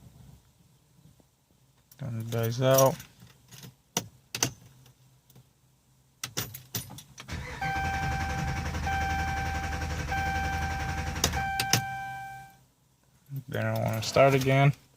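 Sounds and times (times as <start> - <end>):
car engine cranking and idling: 7.2 - 12.2
dashboard chime tones: 10.1 - 12.6.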